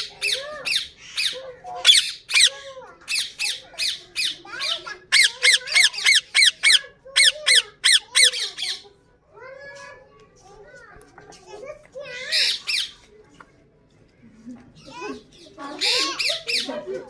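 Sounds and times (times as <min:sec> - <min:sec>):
parakeets squawking: 0:00.0 - 0:08.8.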